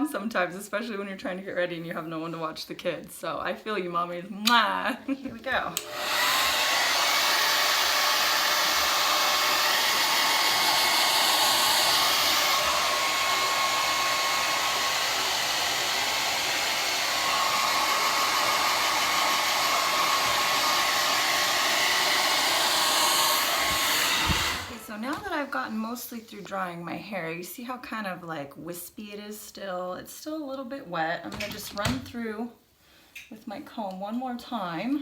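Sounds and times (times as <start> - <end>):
hair dryer running: 5.5 - 25.5.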